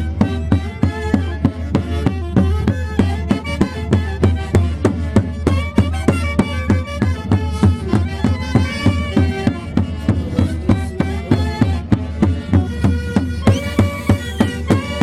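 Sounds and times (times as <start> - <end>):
steady drumbeat: 0.0 - 15.0
wind instruments playing melody: 0.0 - 15.0.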